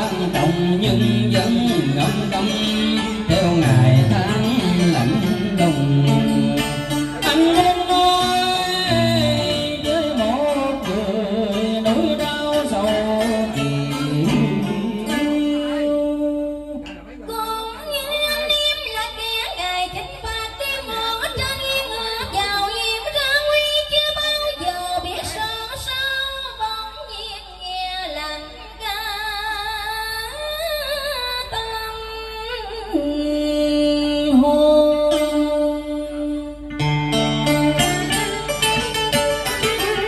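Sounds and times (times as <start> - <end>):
instrumental accompaniment: 0.0 - 19.0, 33.0 - 40.0
woman singing with vibrato: 0.0 - 36.8.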